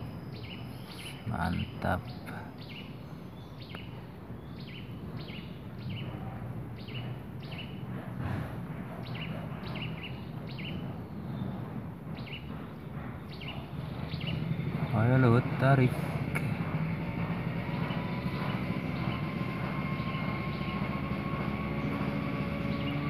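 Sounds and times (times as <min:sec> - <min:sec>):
small bird chirping: 0:00.0 - 0:06.2, 0:09.0 - 0:11.5
low background rumble: 0:00.0 - 0:23.0.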